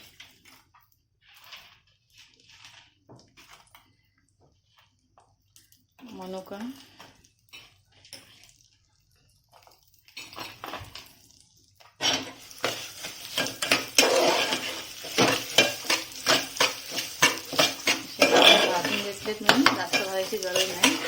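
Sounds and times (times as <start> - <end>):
spoon scraping a cooking pot: 12.0 - 21.0.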